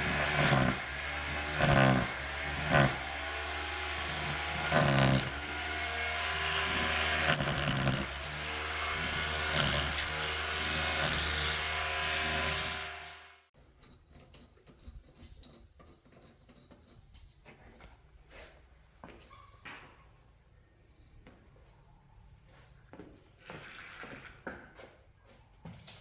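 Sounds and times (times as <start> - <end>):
electric drill running: 0.0 - 13.3.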